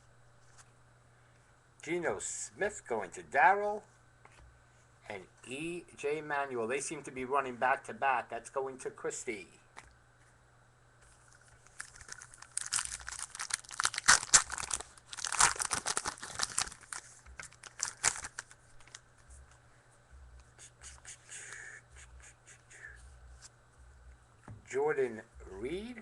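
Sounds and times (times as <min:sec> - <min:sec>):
cards rustling and clicking: 0:11.1 - 0:19.6
foil wrapper tearing and crinkling: 0:11.6 - 0:19.0.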